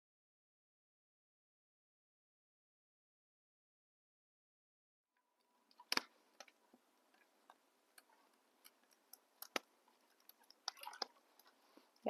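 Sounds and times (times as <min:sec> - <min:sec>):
wood fire crackling: 0:05.5 - 0:12.0.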